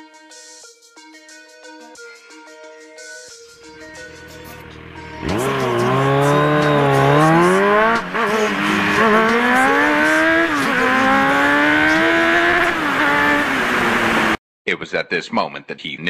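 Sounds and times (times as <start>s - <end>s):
motorcycle engine accelerating: 3.7s - 14.4s.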